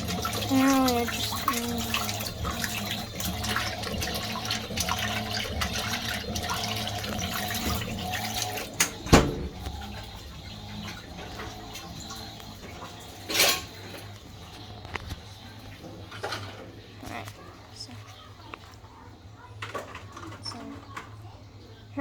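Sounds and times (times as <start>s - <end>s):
water splashing in washing machine: 0.0s - 22.0s.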